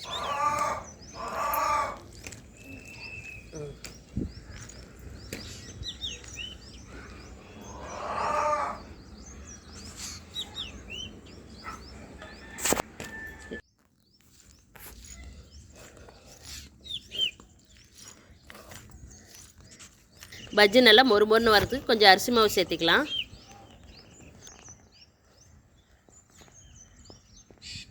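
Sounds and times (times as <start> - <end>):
small birds chirping: 0.0 - 27.9
sharp click: 12.6 - 13.1.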